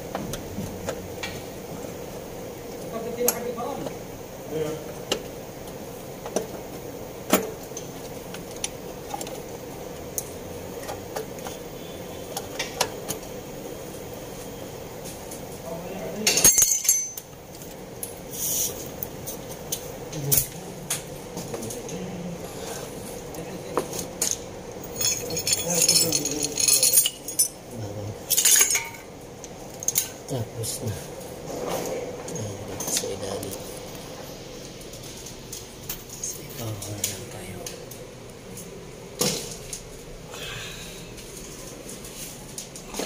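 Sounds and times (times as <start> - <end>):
metal tools clinking and rattling: 16.2 - 17.3, 24.2 - 27.6, 28.2 - 29.1.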